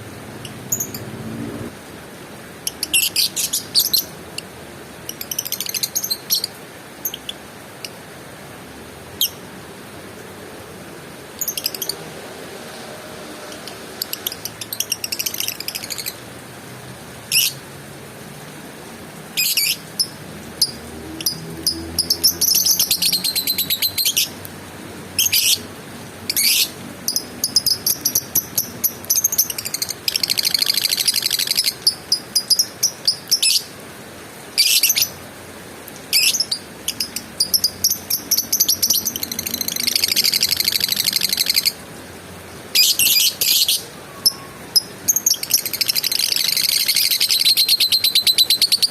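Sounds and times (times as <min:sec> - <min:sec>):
lovebird chirping: 0:00.3 - 0:01.2, 0:02.6 - 0:08.0, 0:11.4 - 0:12.0, 0:13.4 - 0:16.2, 0:17.3 - 0:17.6, 0:19.4 - 0:24.4, 0:25.2 - 0:25.7, 0:26.3 - 0:33.7, 0:34.6 - 0:35.2, 0:36.1 - 0:41.8, 0:42.8 - 0:48.9
lovebird chattering trills: 0:42.8 - 0:48.9.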